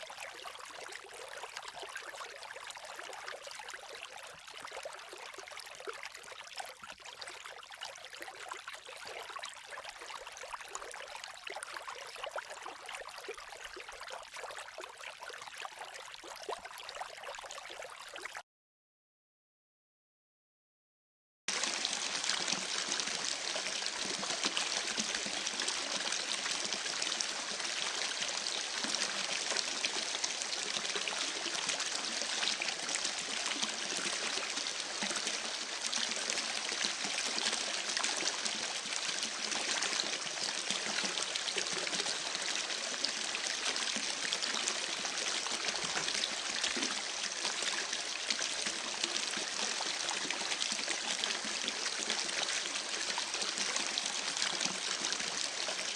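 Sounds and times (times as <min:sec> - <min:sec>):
creek babbling: 0:21.5 - 0:55.9.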